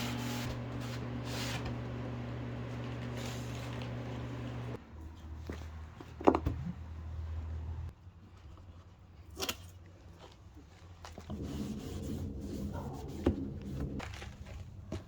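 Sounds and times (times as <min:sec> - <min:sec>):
rubbing noise: 0:11.3 - 0:14.0.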